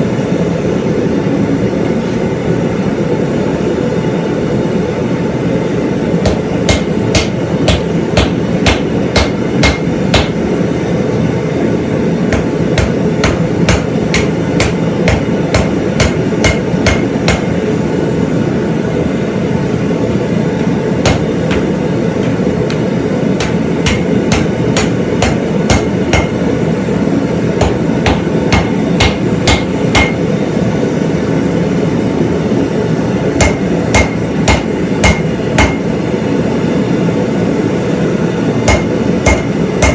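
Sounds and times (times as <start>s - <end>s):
hammer striking steel on anvil: 6.2s - 10.5s, 12.3s - 17.6s, 21.0s - 26.5s, 27.6s - 30.3s, 33.4s - 36.0s, 38.6s - 39.9s.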